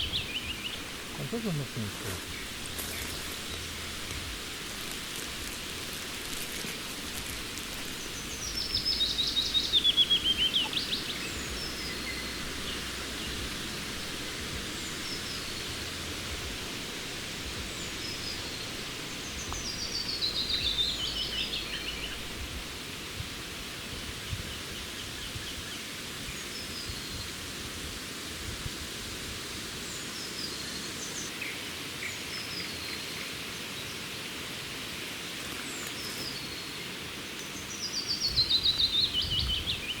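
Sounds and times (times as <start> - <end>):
birds calling faintly: 0.0 - 22.6
songbird singing: 0.0 - 23.2, 35.2 - 40.0
steady background hiss: 0.0 - 40.0.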